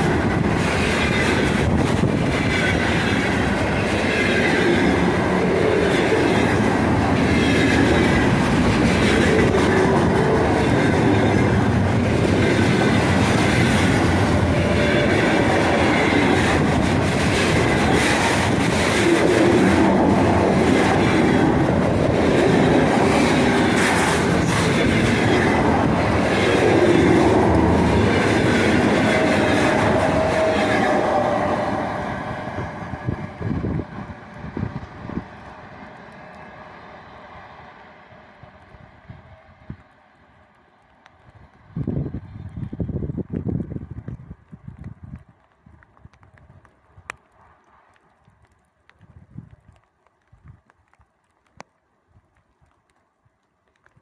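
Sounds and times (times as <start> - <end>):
wheels clattering over rail joints: 0.0 - 31.2
freight train wagons rolling: 0.0 - 44.4.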